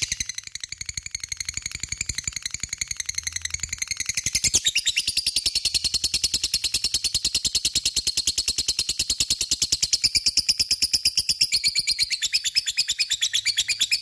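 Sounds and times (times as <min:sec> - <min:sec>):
lovebird chattering: 0:11.3 - 0:14.0.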